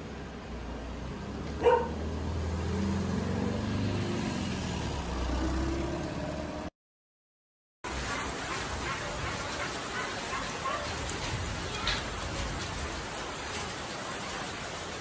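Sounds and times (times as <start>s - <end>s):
vehicle engine passing by: 0.0s - 6.7s
dog barking: 1.6s - 2.0s, 8.1s - 11.0s.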